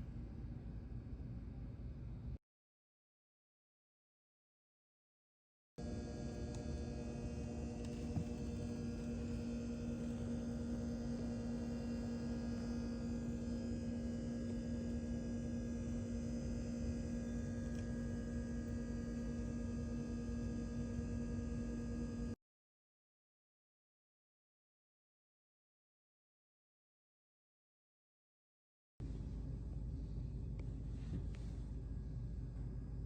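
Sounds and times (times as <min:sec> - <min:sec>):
steady hum: 0:05.8 - 0:22.4, 0:29.0 - 0:33.0.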